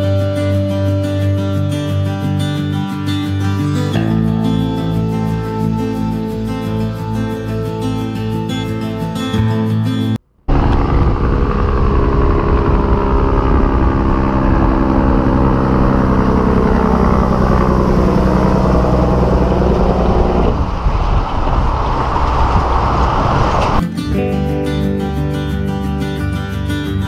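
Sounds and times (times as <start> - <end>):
truck diesel engine running: 10.5 - 23.8.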